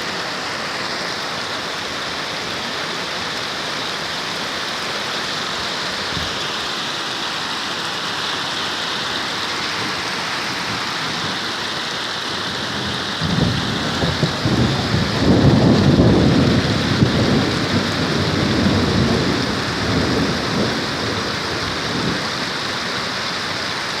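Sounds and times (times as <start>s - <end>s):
heavy rain falling: 0.0s - 24.0s
thunder rumbling: 12.5s - 22.4s.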